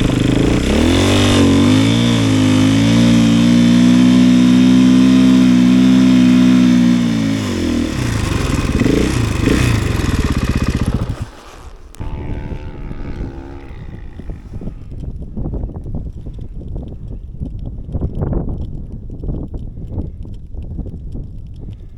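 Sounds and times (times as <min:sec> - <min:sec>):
snowbike engine revving: 0:00.0 - 0:15.0.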